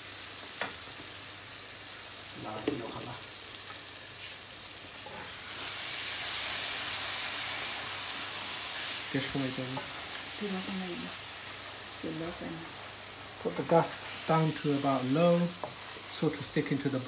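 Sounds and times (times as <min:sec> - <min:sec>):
curry sizzling in a pan: 0:00.0 - 0:17.0
wooden spatula stirring: 0:13.4 - 0:16.5.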